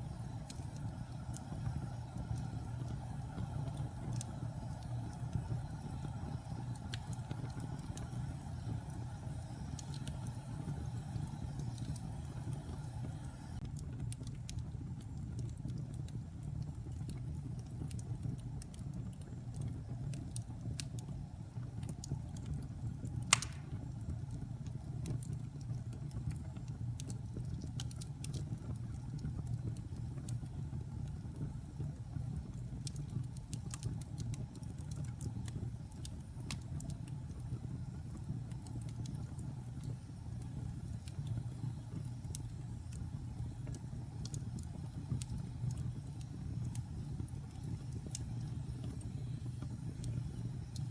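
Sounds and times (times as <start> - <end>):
wood fire rumbling and crackling: 0.0 - 50.9
loud pop from fire: 23.3 - 23.9.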